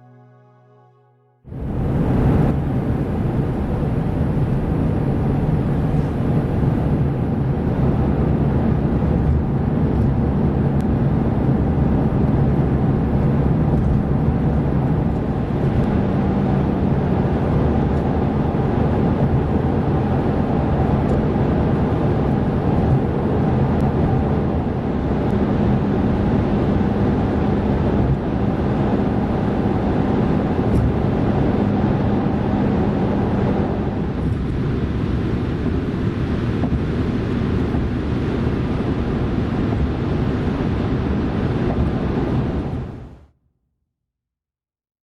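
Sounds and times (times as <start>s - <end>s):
car engine drone: 0.0s - 43.2s
road and wind noise: 1.5s - 43.3s.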